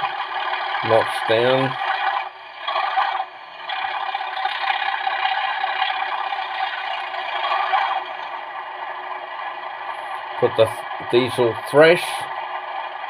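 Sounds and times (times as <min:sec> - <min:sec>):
diesel engine sound from small speaker: 0:00.0 - 0:13.0.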